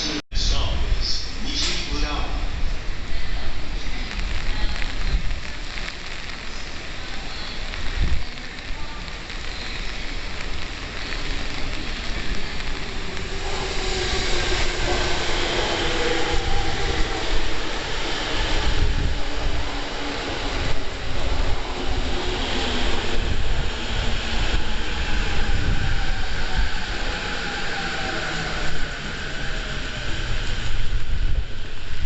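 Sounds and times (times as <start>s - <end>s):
rain: 0.8s - 32.0s
wind buffeting microphone: 2.4s - 32.0s.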